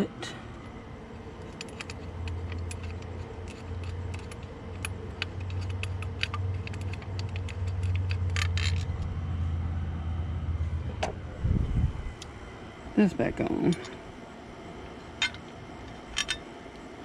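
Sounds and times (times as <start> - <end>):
low hum: 0.0 - 17.0
metal tools clinking and rattling: 1.4 - 9.0, 13.6 - 14.0, 15.2 - 16.5.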